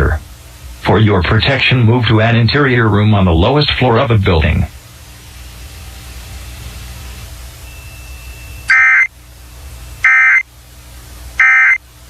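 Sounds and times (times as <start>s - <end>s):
radio hiss and hum: 0.0s - 11.9s
buzzing digital tone bursts: 7.8s - 9.1s, 10.0s - 10.4s, 11.4s - 11.8s.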